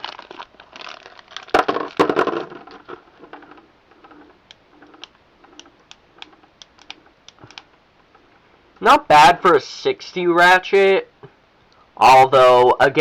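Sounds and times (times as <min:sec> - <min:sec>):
plastic packaging crinkling: 0:00.0 - 0:04.3.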